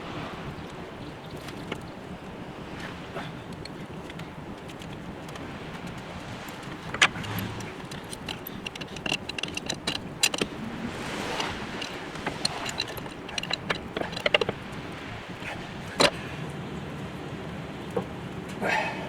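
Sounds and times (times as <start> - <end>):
metal tools clinking: 6.4 - 16.1.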